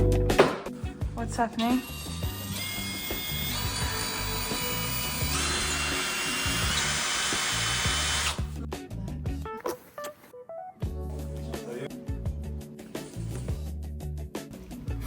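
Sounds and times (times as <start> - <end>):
background music with beat: 0.0 - 1.2, 10.4 - 15.0
small electric motor running: 1.8 - 8.4.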